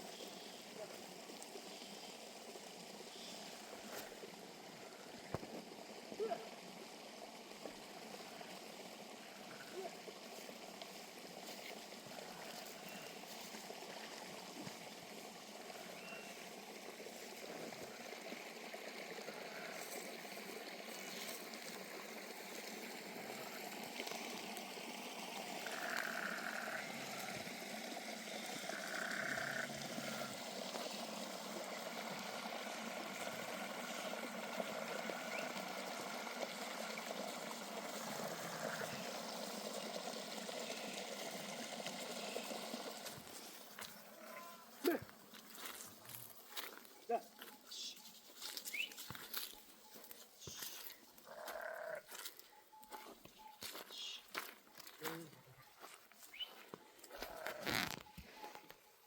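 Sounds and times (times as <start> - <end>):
river water flowing: 0.0 - 46.8.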